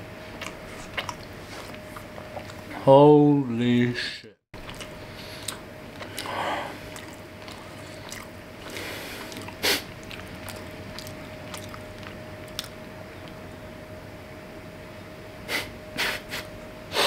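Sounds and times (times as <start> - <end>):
faint steady hum: 0.0 - 17.0
person chewing: 0.3 - 2.7, 4.6 - 13.4
wet mouth clicks: 0.4 - 2.6, 4.6 - 13.4.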